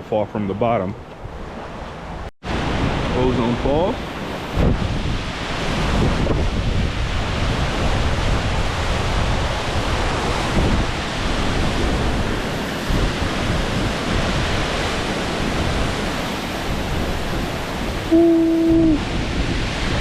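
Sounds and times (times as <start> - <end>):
wind buffeting microphone: 1.2 - 20.0
waterfall rushing: 11.9 - 20.0.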